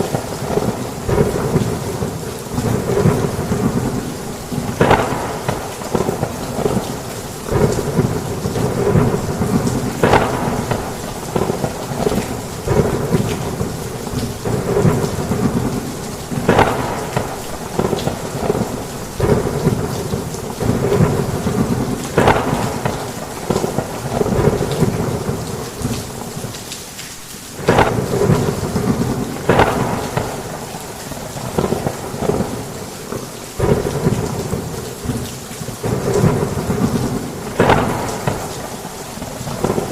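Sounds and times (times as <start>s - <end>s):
thunder: 0.0s - 26.5s, 27.6s - 39.9s
heavy rain on a roof: 0.0s - 39.9s
sharp cracks: 4.8s - 7.8s, 9.6s - 13.4s, 16.4s - 18.2s, 29.5s - 30.5s, 37.5s - 39.9s.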